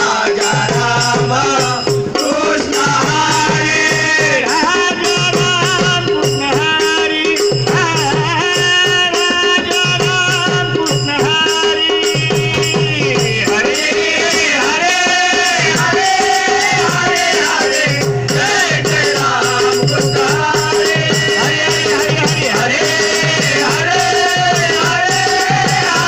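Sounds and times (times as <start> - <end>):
rattling percussion: 0.0 - 26.0.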